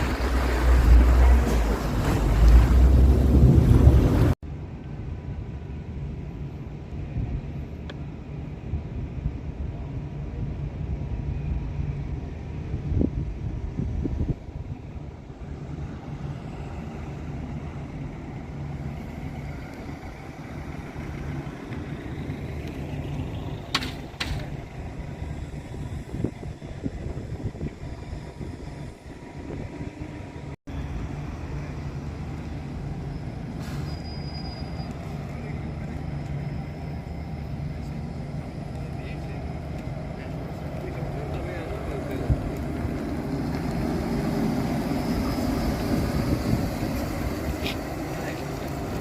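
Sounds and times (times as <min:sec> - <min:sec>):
vehicle engine droning: 0:14.8 - 0:49.0.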